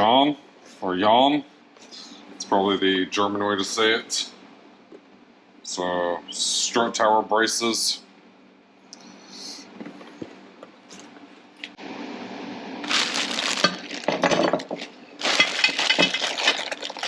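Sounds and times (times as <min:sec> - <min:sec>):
packaging crinkling and rustling: 0:12.8 - 0:17.0.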